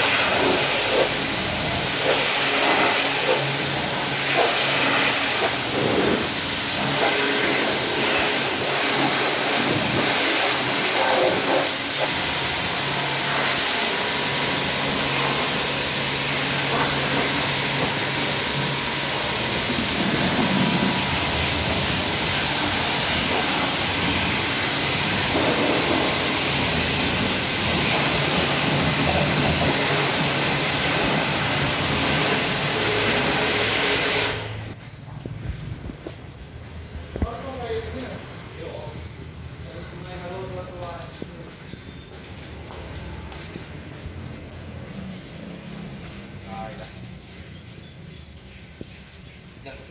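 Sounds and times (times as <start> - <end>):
car wash rushing hiss: 0.0 - 34.8.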